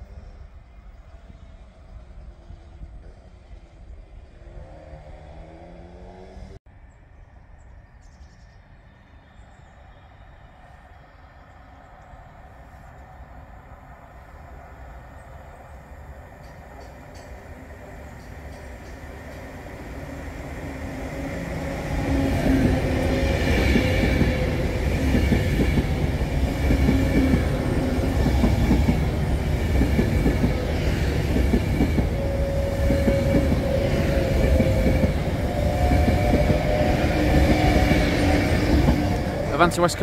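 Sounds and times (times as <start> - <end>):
train wheels rumbling on rail: 10.6 - 40.0.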